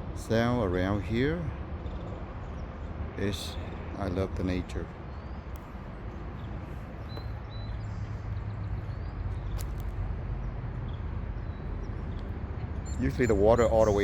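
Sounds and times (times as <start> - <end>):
faint bird chirps: 12.8 - 14.0.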